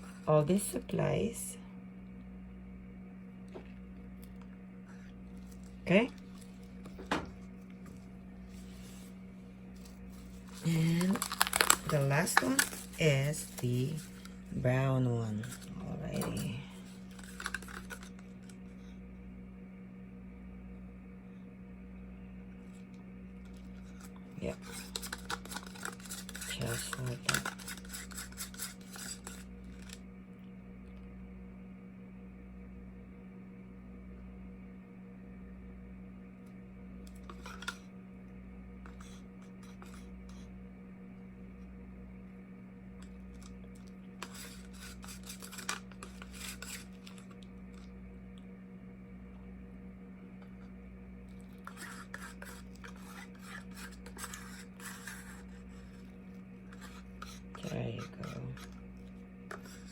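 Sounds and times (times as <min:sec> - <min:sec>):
steady low hum: 0:00.0 - 0:59.9
paint scraping from container: 0:08.0 - 0:18.6, 0:23.5 - 0:30.0, 0:38.9 - 0:40.5, 0:44.2 - 0:47.9, 0:51.4 - 0:59.9.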